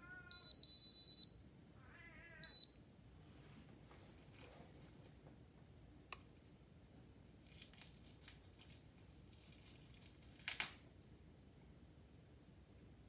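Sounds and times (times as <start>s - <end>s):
soft scratchy rustles: 3.2s - 5.4s, 7.2s - 10.4s.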